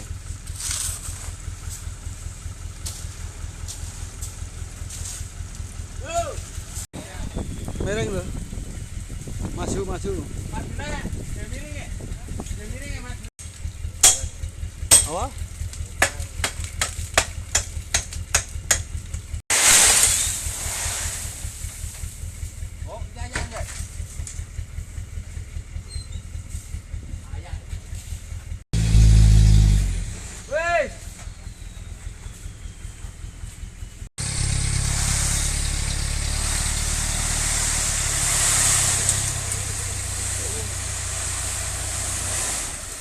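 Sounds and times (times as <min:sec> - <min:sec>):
diesel engine idling: 0:00.0 - 0:06.9, 0:11.8 - 0:19.4, 0:21.2 - 0:38.3
loud rushing hiss: 0:19.5 - 0:21.7
loud hiss: 0:19.5 - 0:22.0, 0:34.2 - 0:43.0.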